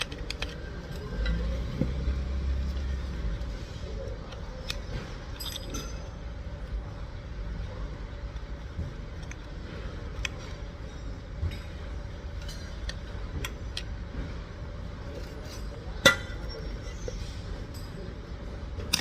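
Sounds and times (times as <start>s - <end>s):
light clinks of hard objects: 4.8s - 6.2s.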